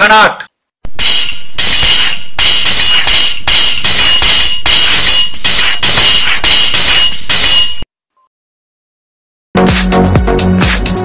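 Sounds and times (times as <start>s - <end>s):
swords clashing: 1.0s - 7.8s.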